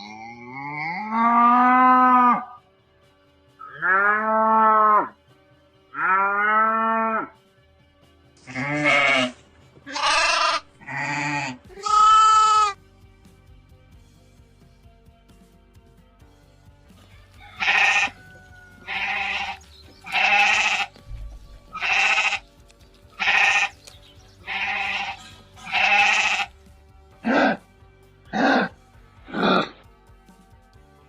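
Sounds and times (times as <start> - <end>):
soft background music: 0.0 - 31.0
goat bleating: 3.6 - 5.1, 6.0 - 7.3, 8.4 - 12.8, 17.6 - 21.0, 21.7 - 22.6, 23.2 - 26.6.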